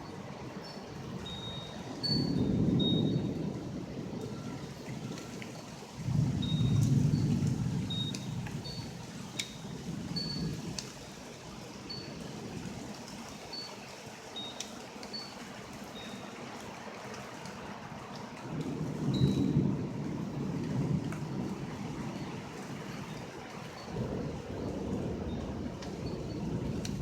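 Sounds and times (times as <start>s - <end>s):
steady rain: 0.0s - 27.0s
trickling runoff: 0.0s - 27.0s
thunder rumbling: 1.0s - 13.0s, 17.8s - 27.0s.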